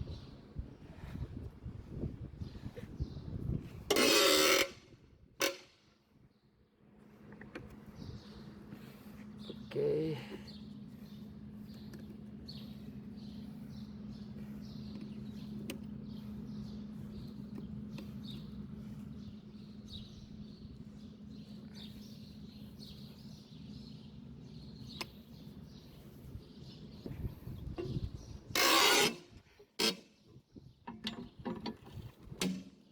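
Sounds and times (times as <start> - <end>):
steady low hum: 4.6 - 32.8
birds chirping: 6.3 - 28.9.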